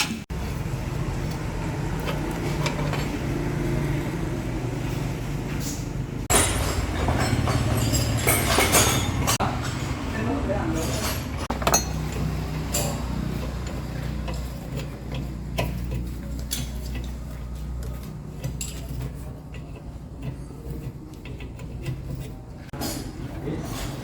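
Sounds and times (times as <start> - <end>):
tools clinking on metal: 6.3 - 9.8, 10.8 - 14.9.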